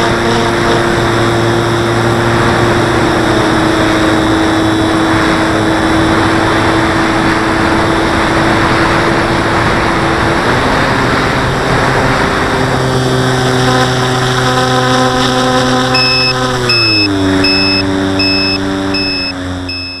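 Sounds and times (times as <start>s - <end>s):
model airplane motor and propeller: 0.0s - 20.0s
wind rush: 1.1s - 14.4s
short high electronic beep: 16.0s - 20.0s.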